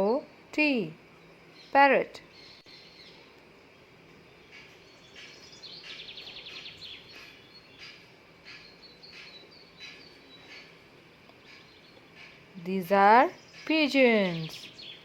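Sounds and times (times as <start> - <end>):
small birds chirping: 0.0 - 15.0
bird trill: 4.4 - 10.8, 13.3 - 15.0.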